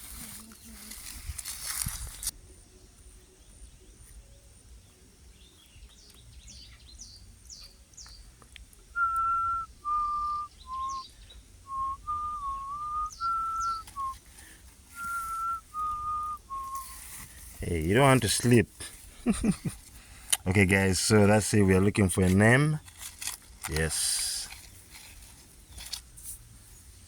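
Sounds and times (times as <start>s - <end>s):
person whistling a slow tune: 8.9s - 17.0s
faint high bird chirps: 9.0s - 14.2s.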